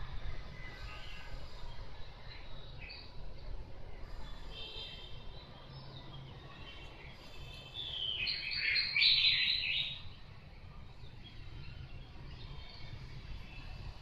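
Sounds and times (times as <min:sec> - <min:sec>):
songbird chirping: 0:04.0 - 0:10.3.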